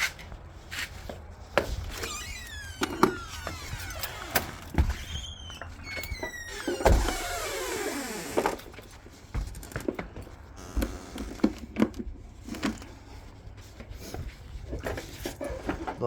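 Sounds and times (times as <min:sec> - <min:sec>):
gear and cable knocks and clunks: 0:08.4 - 0:13.0.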